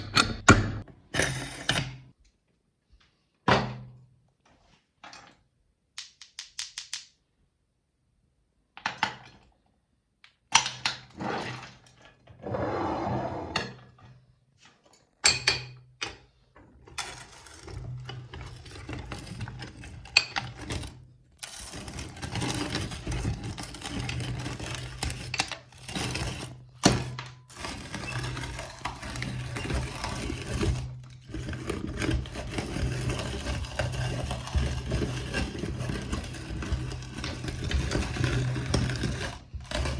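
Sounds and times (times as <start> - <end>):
candy crunching and grinding: 21.4 - 39.9.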